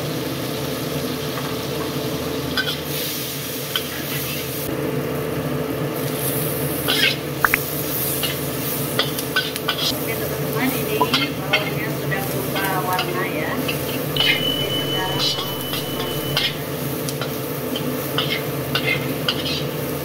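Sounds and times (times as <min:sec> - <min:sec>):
vegetables sizzling in oil: 0:00.0 - 0:20.0
steady low hum: 0:14.0 - 0:16.8
spatula scraping a wok: 0:17.2 - 0:19.8.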